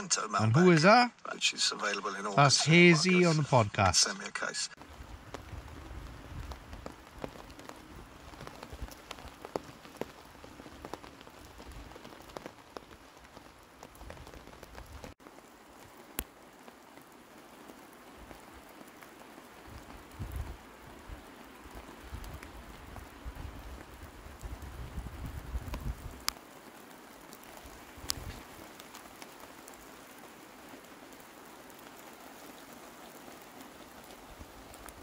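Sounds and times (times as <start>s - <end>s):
steady rain: 0.0s - 35.0s
raindrops tapping on tent: 4.8s - 35.0s.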